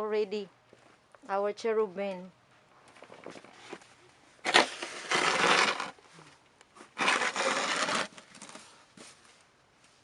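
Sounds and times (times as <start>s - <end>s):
snow shovel scraping snow: 4.4s - 6.0s, 6.8s - 8.7s.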